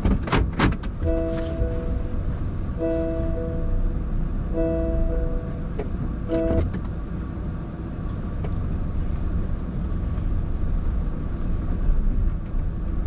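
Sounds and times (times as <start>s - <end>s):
car road and engine rumble: 0.0s - 13.0s
chord of steady tones: 1.0s - 6.7s.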